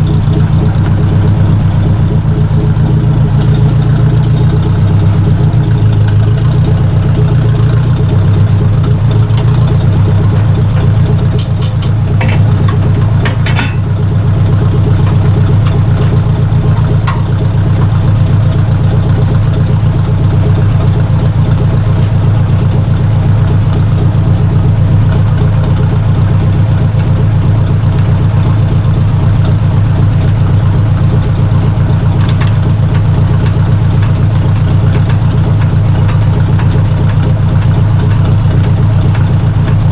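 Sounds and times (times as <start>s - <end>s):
tractor engine running: 0.0s - 39.9s
short metallic clinks: 9.6s - 14.4s.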